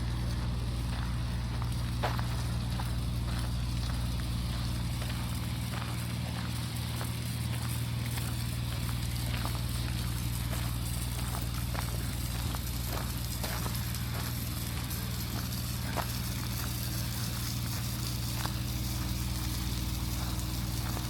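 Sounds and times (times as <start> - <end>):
footsteps walking: 0.0 - 21.0
steady low hum: 0.0 - 21.0.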